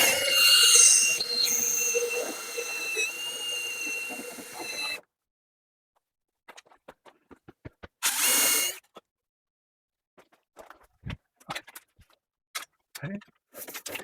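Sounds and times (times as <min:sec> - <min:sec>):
power drill whining: 0:00.0 - 0:05.0, 0:08.0 - 0:08.8.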